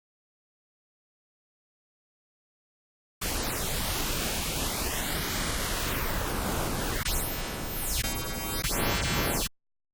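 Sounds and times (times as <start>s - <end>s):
buzzy cluster of synth tones: 3.2s - 9.5s.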